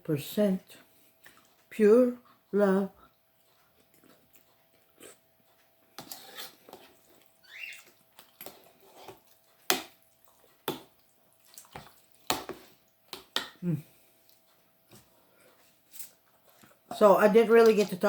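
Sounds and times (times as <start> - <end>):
chewing and mouth smacks: 1.2 - 13.6
squeaky slurp: 6.1 - 6.6.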